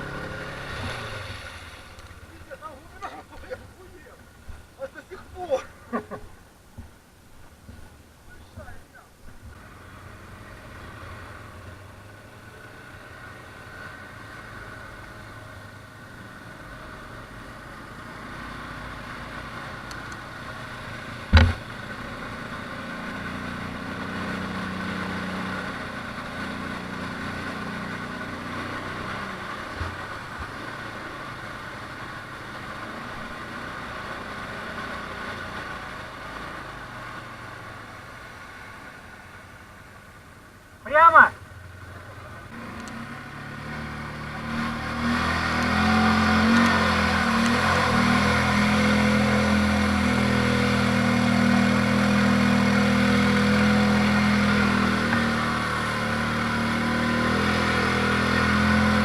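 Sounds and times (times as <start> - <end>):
atv engine running: 0.0 - 6.9, 9.4 - 59.0
sharp knock: 21.3 - 21.6.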